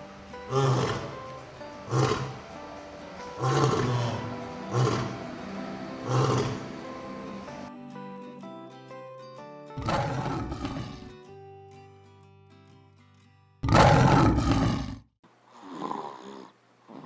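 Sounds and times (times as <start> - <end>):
soft background music: 0.0 - 13.0
lion roaring: 0.5 - 1.1, 1.8 - 2.4, 3.4 - 5.2, 6.0 - 6.7, 9.8 - 11.1, 13.6 - 15.0.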